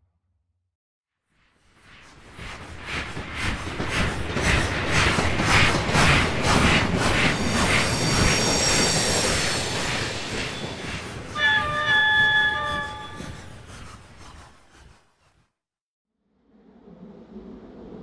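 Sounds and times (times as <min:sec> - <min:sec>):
train rumbling on rails: 0:01.8 - 0:15.0
train wheels squealing: 0:07.2 - 0:14.8.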